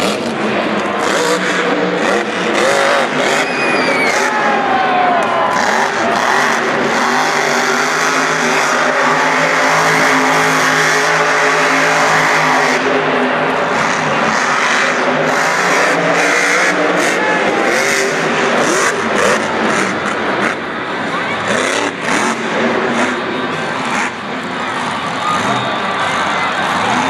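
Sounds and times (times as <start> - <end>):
dense noisy wash: 0.0 - 27.0
monster truck engine revving: 0.0 - 27.0.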